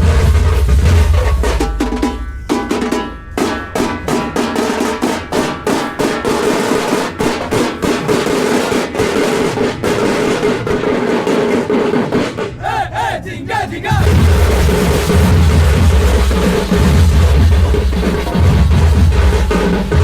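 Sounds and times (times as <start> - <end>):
wavering high notes: 0.0 - 9.5
frame drums playing fast rhythm: 0.0 - 20.0.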